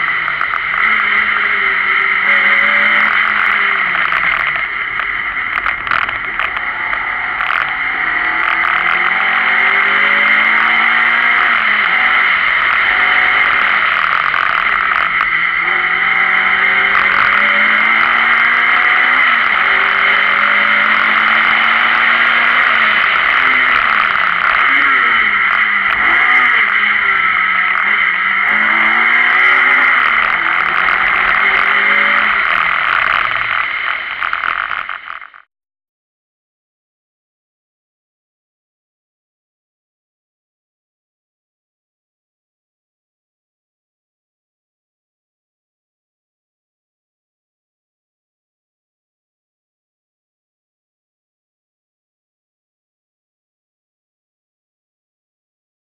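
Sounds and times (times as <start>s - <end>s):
wind and road noise: 0.0s - 35.4s
rally car engine accelerating: 0.0s - 35.5s.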